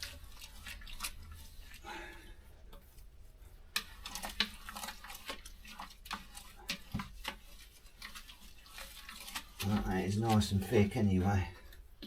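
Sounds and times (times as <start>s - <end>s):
paddle scraping thick mash: 0.0s - 12.0s.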